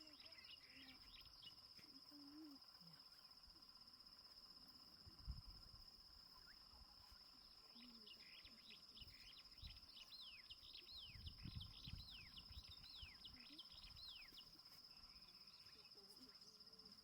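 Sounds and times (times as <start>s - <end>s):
bird chirping: 0.0s - 1.7s, 6.4s - 16.7s
high-pitched insect trill: 0.0s - 17.0s.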